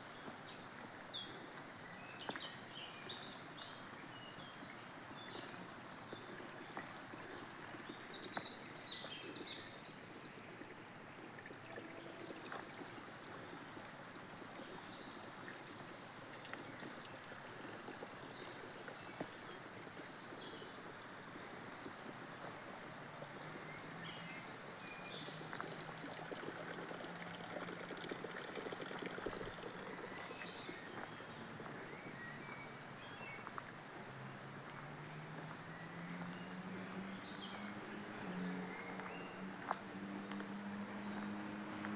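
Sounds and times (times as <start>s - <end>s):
running water: 3.2s - 31.7s
birds chirping: 29.4s - 33.6s.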